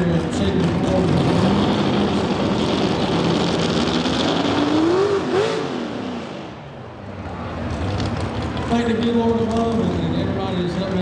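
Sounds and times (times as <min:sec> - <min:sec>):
crowd noise: 0:00.0 - 0:11.0
engine revving: 0:00.6 - 0:06.6.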